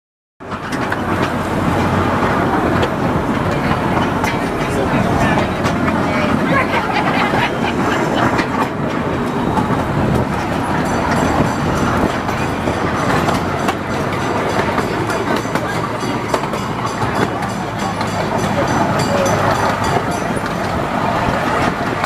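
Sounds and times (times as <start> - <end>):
train rumbling along track: 0.4 - 22.0
wheels clicking over rails: 0.4 - 22.0.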